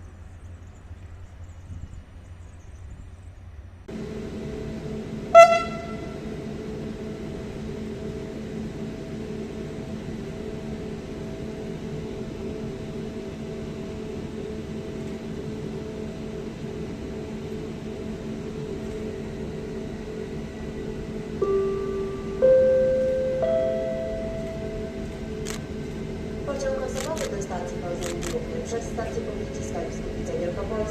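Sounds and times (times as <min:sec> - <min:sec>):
machine hum: 0:03.9 - 0:30.9
locomotive horn toot: 0:05.3 - 0:06.2.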